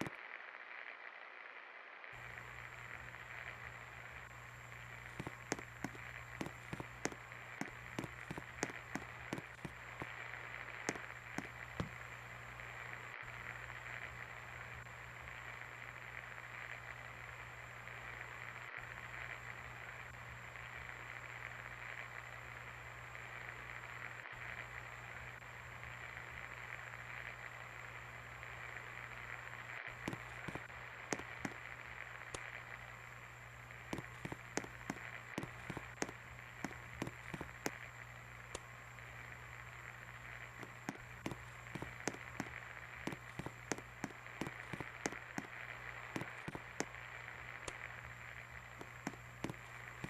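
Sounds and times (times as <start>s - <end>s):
sharp clicks: 5.1s - 10.1s, 34.0s - 37.8s, 40.6s - 45.5s.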